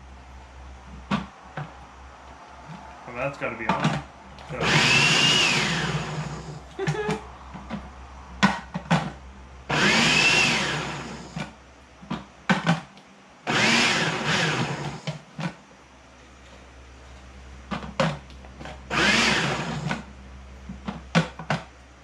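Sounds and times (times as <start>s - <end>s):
food processor motor whine: 3.8s - 7.1s, 9.7s - 11.5s, 13.4s - 15.2s, 18.6s - 20.1s.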